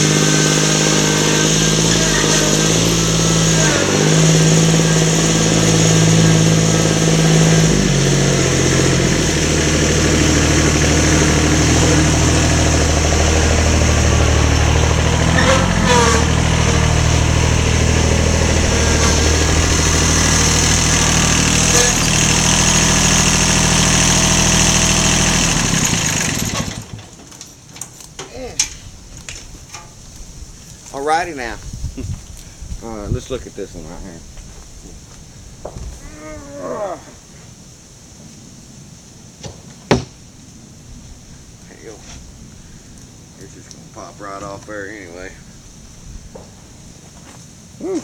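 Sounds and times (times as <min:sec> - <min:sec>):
small engine running: 0:00.0 - 0:27.0.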